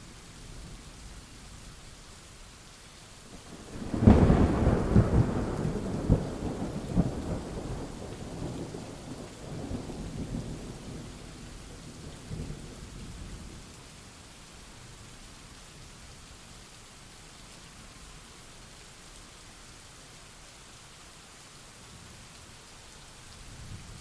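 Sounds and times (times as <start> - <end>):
steady rain: 0.0 - 24.0
thunder cracking and rumbling: 3.7 - 11.4.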